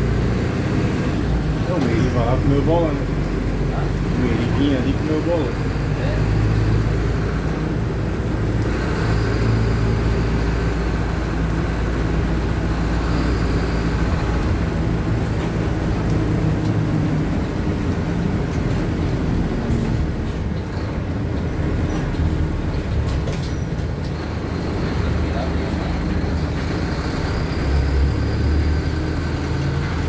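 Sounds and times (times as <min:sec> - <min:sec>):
bus diesel engine running: 0:00.0 - 0:30.0.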